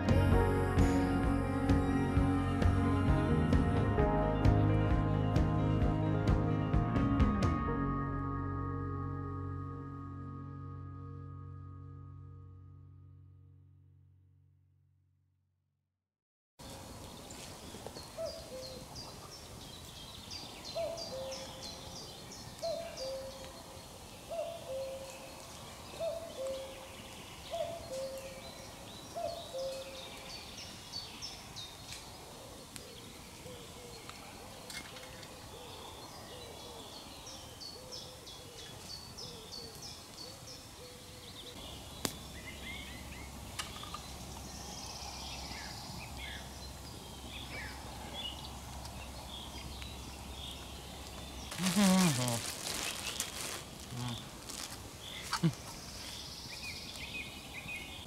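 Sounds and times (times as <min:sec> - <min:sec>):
small birds chirping: 0:16.6 - 0:58.0.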